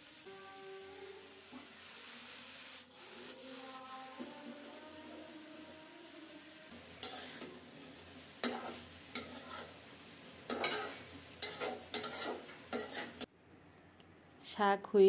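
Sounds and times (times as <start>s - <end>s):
greens sizzling in oil: 0.0s - 13.3s
metal spatula scraping pan: 7.0s - 7.6s, 8.4s - 9.8s, 10.4s - 13.3s.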